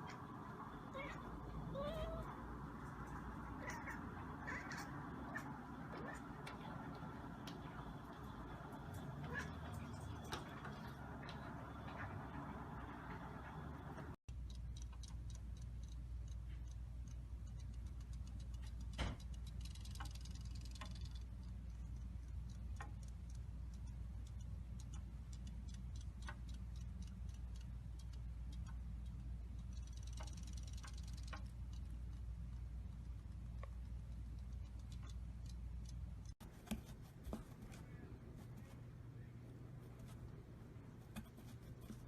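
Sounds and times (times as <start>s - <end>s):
steady low hum: 0.0s - 42.0s
soft clicking: 14.3s - 42.0s.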